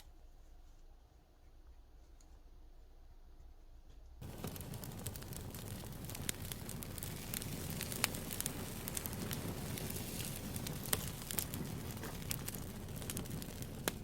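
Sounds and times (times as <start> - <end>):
campfire crackling and popping: 4.2 - 14.0.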